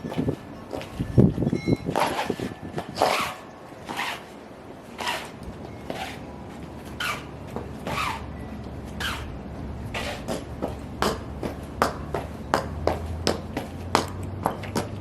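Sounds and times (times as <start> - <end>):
high-heeled footsteps: 0.0 - 15.0.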